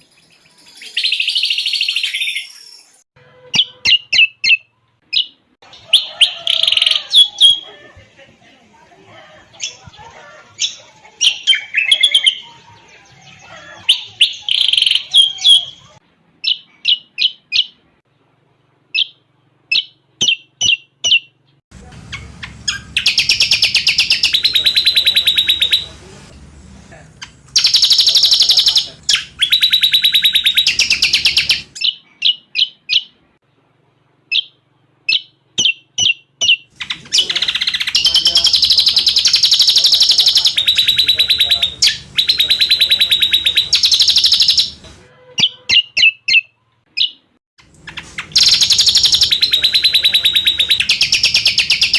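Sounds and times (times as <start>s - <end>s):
bird chirping: 0.0s - 7.8s, 9.5s - 18.0s, 18.9s - 26.3s, 27.2s - 33.6s, 34.3s - 51.9s
bird rapid trills: 47.8s - 51.9s.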